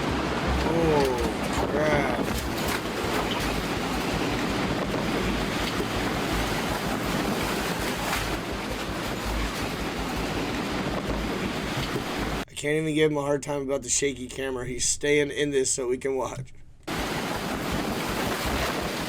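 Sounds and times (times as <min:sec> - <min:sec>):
wind buffeting microphone: 0:00.0 - 0:12.4, 0:16.9 - 0:19.0.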